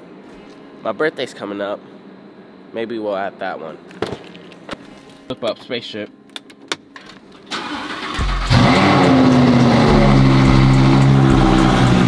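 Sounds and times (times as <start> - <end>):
car engine idling high: 8.2 - 12.0.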